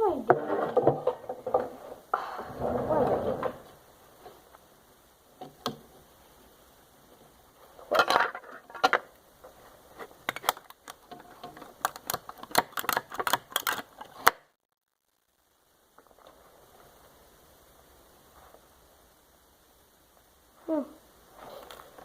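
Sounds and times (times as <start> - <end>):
faint room tone: 0.0 - 22.0
plastic remote parts clattering: 10.3 - 14.3
hand tools clicking and knocking: 10.3 - 14.4.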